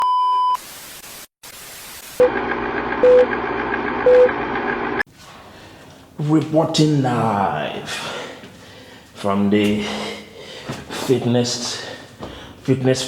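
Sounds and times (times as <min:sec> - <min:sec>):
static hiss: 0:00.6 - 0:02.2
electronic beeps: 0:04.0 - 0:04.3.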